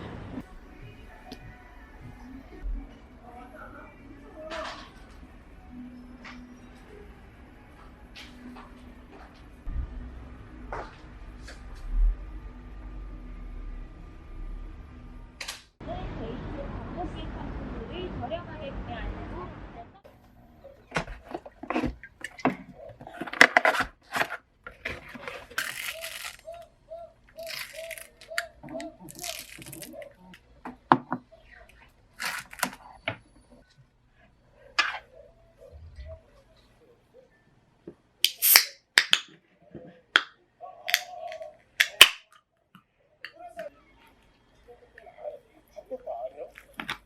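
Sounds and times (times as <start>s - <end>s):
packaging rustling: 23.0s - 26.6s, 27.4s - 30.3s, 32.1s - 33.0s.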